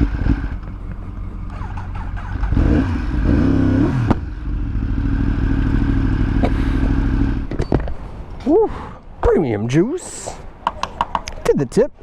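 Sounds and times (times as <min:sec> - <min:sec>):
motorcycle engine idling: 0:00.0 - 0:07.5.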